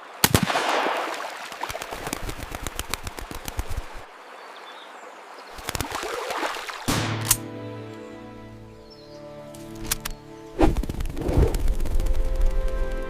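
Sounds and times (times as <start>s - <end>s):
sharp cracks and clicks: 6.9s - 7.5s, 9.7s - 10.2s.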